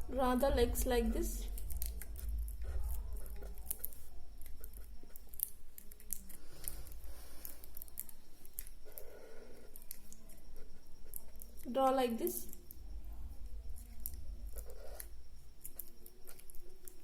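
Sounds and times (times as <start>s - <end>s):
steady low hum: 0.0s - 17.0s
marker scratching on paper: 14.6s - 15.1s.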